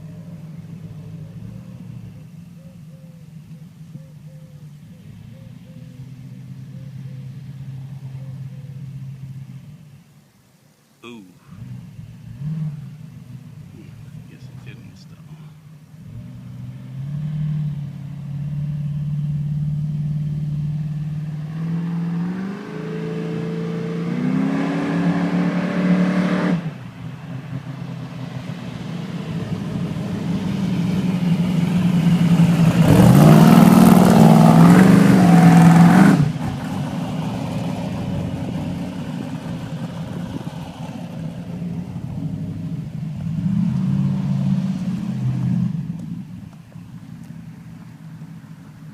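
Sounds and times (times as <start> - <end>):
drag car engine accelerating: 11.5 - 48.9.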